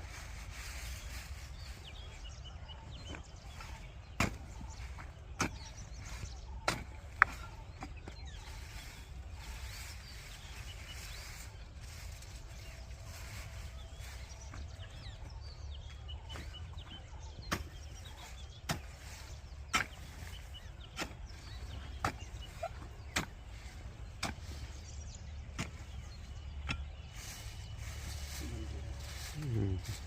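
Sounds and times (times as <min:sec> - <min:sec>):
birds chirping faintly: 0:00.0 - 0:30.0
digging tool striking soil: 0:03.0 - 0:08.2, 0:17.3 - 0:24.7, 0:25.4 - 0:27.2.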